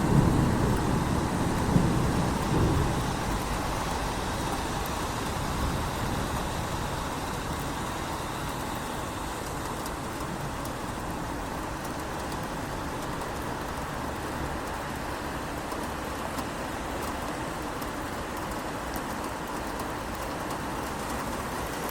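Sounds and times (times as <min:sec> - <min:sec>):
steady rain: 0:00.0 - 0:21.9
traffic on wet roads: 0:00.0 - 0:21.9.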